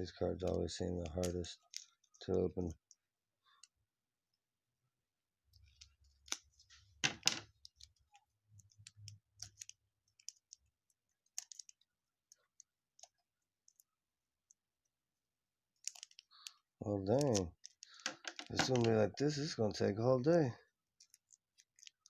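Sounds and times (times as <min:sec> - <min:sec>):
wrapper crinkling: 0:15.8 - 0:19.0, 0:21.0 - 0:22.0.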